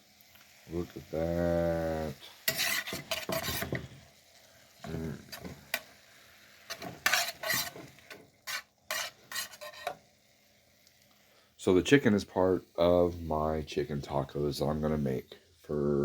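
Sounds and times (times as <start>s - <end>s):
chicken sizzling in a pan: 0.0s - 16.0s
stirring scraping pan: 2.0s - 10.2s.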